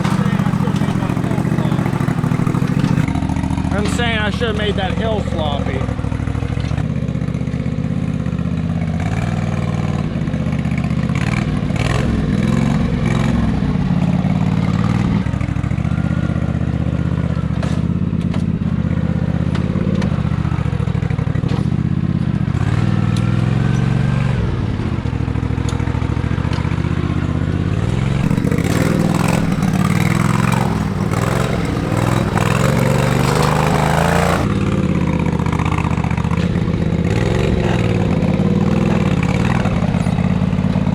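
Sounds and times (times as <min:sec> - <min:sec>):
clatter: 0:00.0 - 0:03.1, 0:28.2 - 0:34.5
lawn tractor engine revving: 0:00.0 - 0:03.1, 0:28.2 - 0:34.5.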